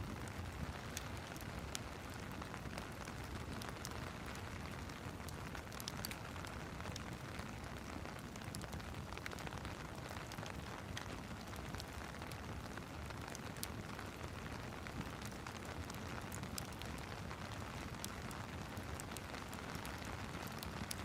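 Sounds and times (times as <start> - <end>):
steady rain hiss: 0.0 - 21.0
wood fire crackling: 0.0 - 21.0.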